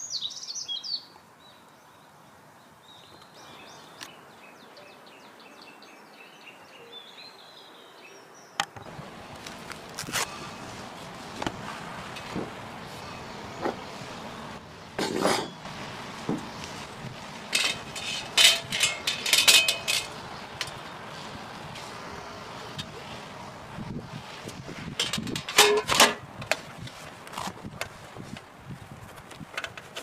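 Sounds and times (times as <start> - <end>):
ringing metallic clinks: 17.6 - 20.2.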